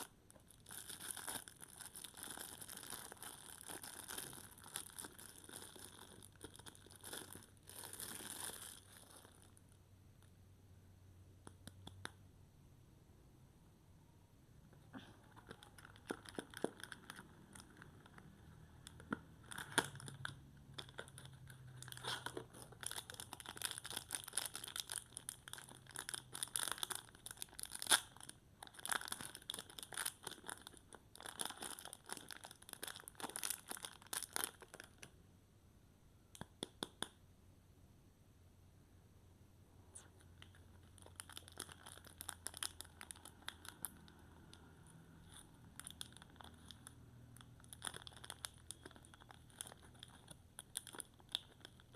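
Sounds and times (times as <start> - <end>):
wrapper crackling and rustling: 0.0 - 9.6, 15.4 - 35.1, 40.5 - 51.9.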